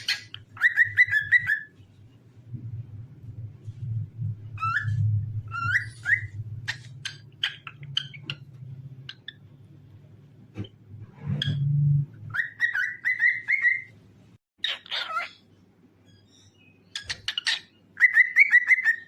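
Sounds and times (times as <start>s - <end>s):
cockatiel whistling: 0.0s - 1.7s, 4.6s - 6.8s, 12.3s - 13.9s, 16.6s - 19.0s
low steady hum: 0.0s - 14.4s.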